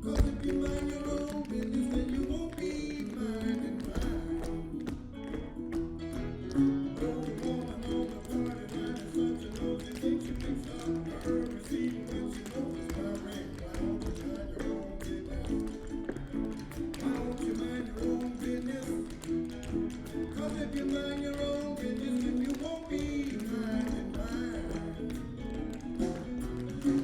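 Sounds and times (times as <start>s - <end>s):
recorded backing music: 0.0s - 27.0s
tap shoes clicking on stage: 0.0s - 27.0s.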